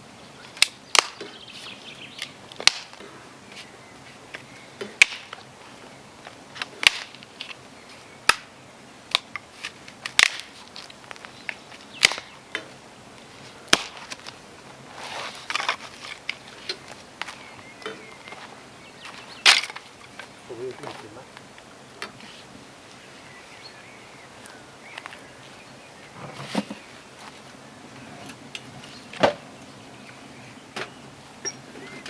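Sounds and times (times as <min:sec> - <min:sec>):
sharp wooden cracks: 0:00.5 - 0:01.6, 0:02.2 - 0:03.1, 0:04.8 - 0:05.5, 0:06.3 - 0:07.6, 0:08.3 - 0:08.5, 0:09.1 - 0:12.7, 0:13.6 - 0:14.4, 0:15.1 - 0:20.4.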